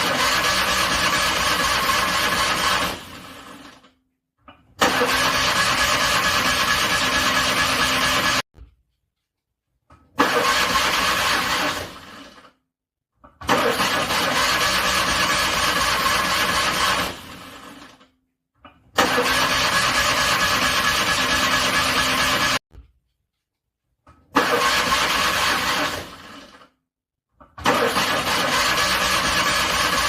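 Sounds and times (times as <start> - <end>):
car starter cranking engine: 0.0 - 3.8, 4.8 - 8.4, 10.2 - 12.6, 13.4 - 18.0, 19.0 - 22.6, 24.3 - 26.7, 27.6 - 30.0.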